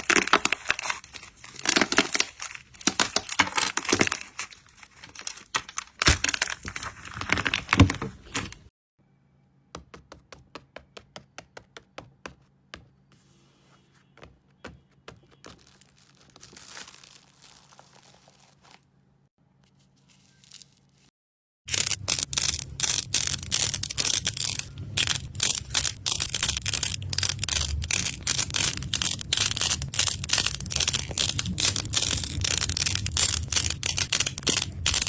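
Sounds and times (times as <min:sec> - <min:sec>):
slime crackling and popping: 0:21.7 - 0:35.0.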